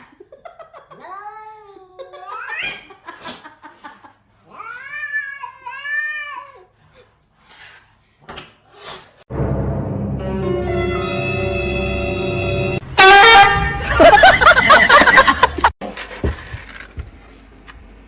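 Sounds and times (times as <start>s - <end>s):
music with horn-like tones: 9.3s - 14.2s.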